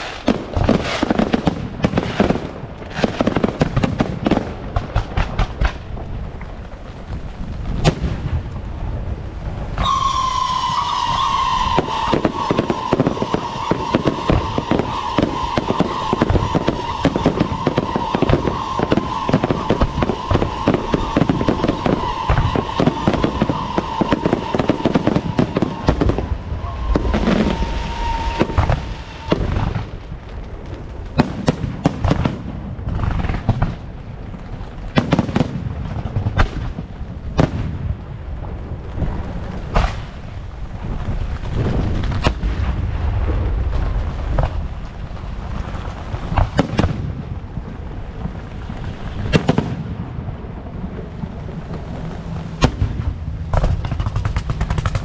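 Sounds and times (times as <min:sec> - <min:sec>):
high firework whistling: 0:00.0 - 0:04.5, 0:09.5 - 0:30.5
loud firework bangs: 0:00.0 - 0:34.0, 0:34.6 - 0:44.8, 0:45.4 - 0:55.0
firecrackers crackling: 0:00.0 - 0:55.0.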